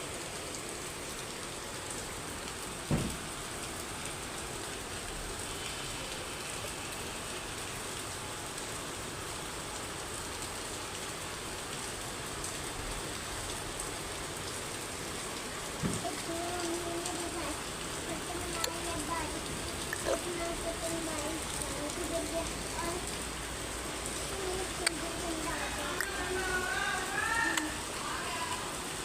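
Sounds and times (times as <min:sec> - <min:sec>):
steady rain falling: 0:00.0 - 0:29.0
low thump: 0:02.9 - 0:03.2.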